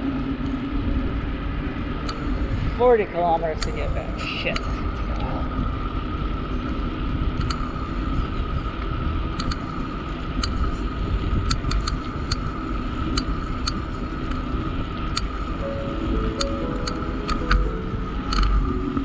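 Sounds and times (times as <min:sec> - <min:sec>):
road rumble: 0:00.0 - 0:19.0
steady hum: 0:00.0 - 0:19.0
wind: 0:00.0 - 0:19.0
sharp clicks: 0:07.4 - 0:07.6, 0:09.4 - 0:09.6, 0:11.5 - 0:12.4, 0:18.3 - 0:18.6.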